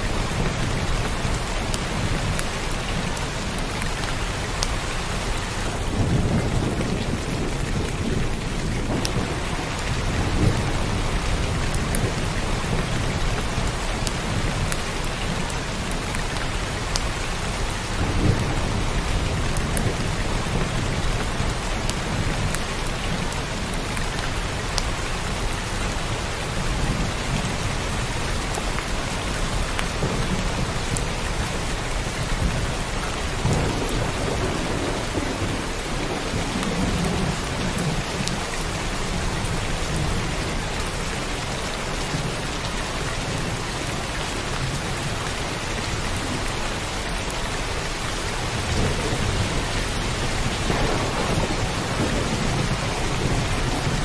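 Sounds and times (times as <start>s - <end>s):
heavy rain falling: 0.0s - 54.0s
thunder rumbling: 5.4s - 14.7s, 26.6s - 40.5s, 48.5s - 54.0s.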